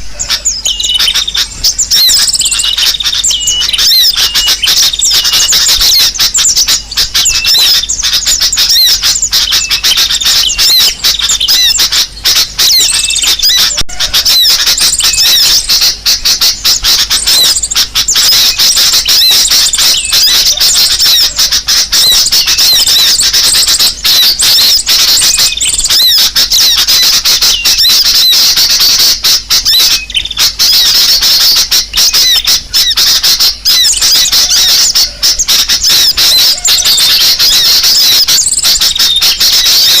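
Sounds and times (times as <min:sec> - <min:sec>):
sunbird high-pitched chirps: 0:00.0 - 0:40.0.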